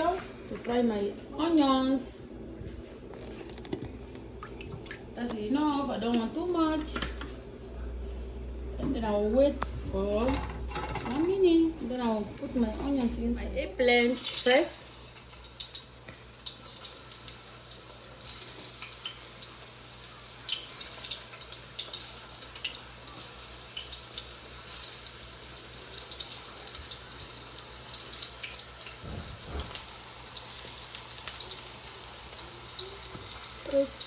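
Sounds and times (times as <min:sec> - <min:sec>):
eggplant frying in oil: 0:13.9 - 0:34.0.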